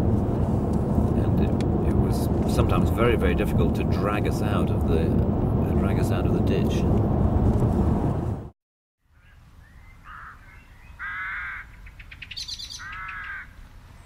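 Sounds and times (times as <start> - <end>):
loud noisy rumble: 0.0 - 8.5
low steady rumble: 0.0 - 8.5
birds calling: 9.1 - 14.0
high chattering bird call: 9.8 - 13.6.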